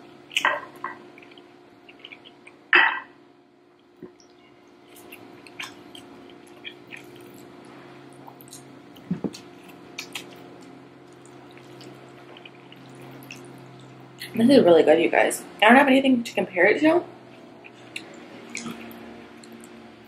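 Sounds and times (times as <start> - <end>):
person chewing food: 0.0 - 2.9, 3.8 - 14.4, 17.3 - 20.0
steady low hum: 0.0 - 20.0
wet mouth clicks and smacks: 8.4 - 10.4, 17.9 - 19.8.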